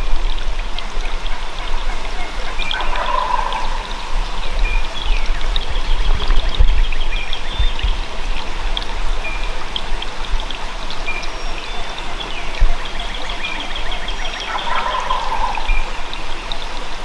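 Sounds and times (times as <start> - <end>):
wind bumps on microphone: 0.0 - 10.5
running water rushing: 0.0 - 17.0.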